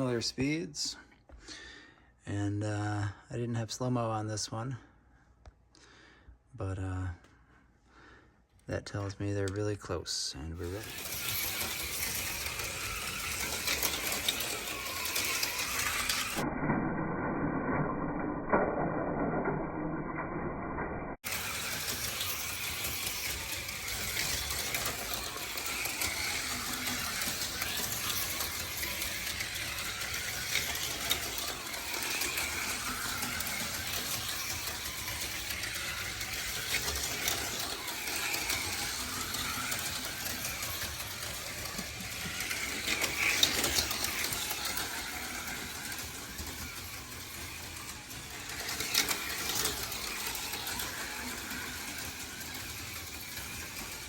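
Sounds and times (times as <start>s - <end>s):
slot car motors whining: 10.4s - 17.8s, 21.2s - 54.0s
cars rattling on plastic track: 10.5s - 16.4s, 21.2s - 54.0s
sharp clacks: 21.5s - 54.0s.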